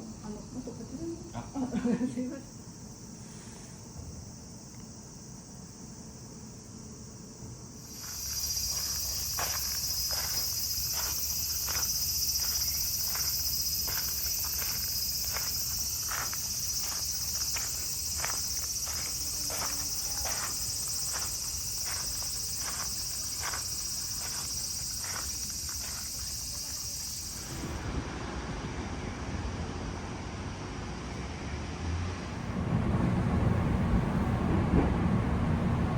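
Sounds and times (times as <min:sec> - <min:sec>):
cicadas chorus: 0:00.0 - 0:28.0
footsteps: 0:07.9 - 0:27.6.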